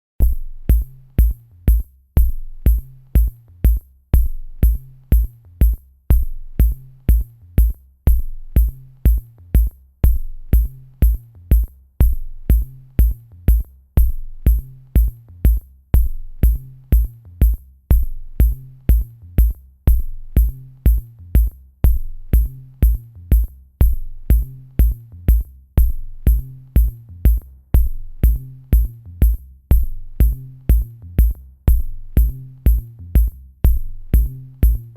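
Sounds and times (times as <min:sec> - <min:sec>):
drum-machine beat: 0:00.2 - 0:34.9.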